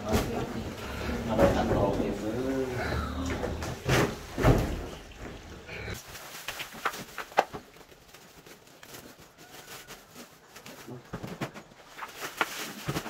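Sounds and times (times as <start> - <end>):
plastic sacks rustling: 0.0 - 2.7, 5.8 - 13.0.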